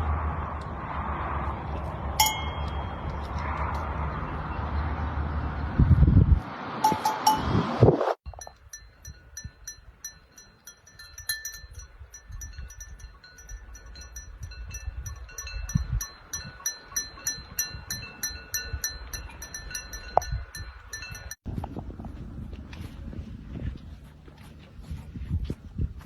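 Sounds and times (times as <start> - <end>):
low rumble: 0.0 - 8.5
small metal bells clinking: 2.2 - 3.3, 8.3 - 21.4.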